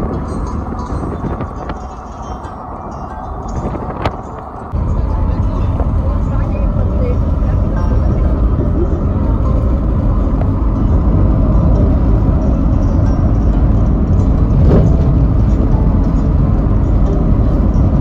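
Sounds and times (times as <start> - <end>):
vehicle driving rumble: 0.0 - 18.0.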